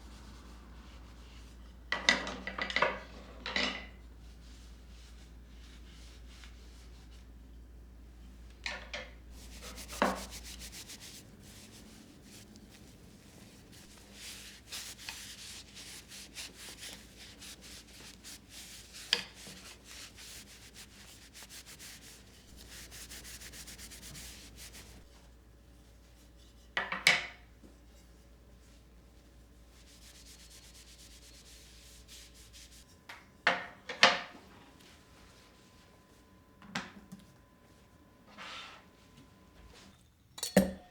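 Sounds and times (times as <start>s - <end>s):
brush scrubbing strokes: 4.2s - 7.3s, 9.3s - 25.2s, 28.6s - 33.0s.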